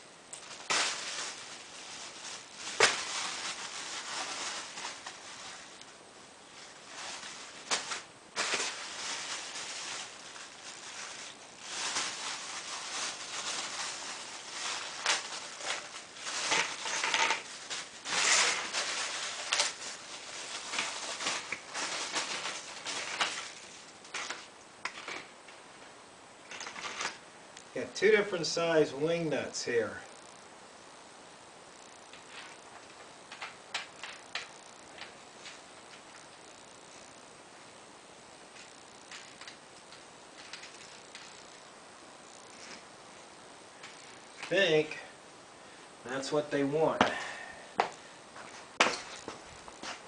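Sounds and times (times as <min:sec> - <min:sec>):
frame parts rustling and clicking: 0:06.6 - 0:25.6, 0:26.5 - 0:27.2, 0:31.8 - 0:37.1, 0:38.5 - 0:41.6.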